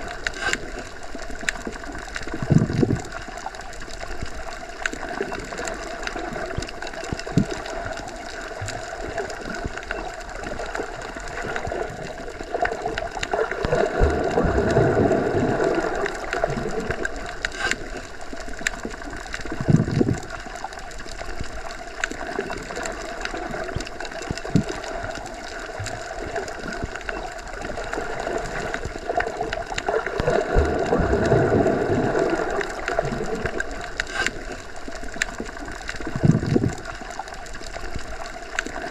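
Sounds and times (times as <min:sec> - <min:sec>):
underwater water noise: 0:00.0 - 0:38.9
faint clicks and knocks: 0:15.7 - 0:31.6, 0:32.3 - 0:38.9.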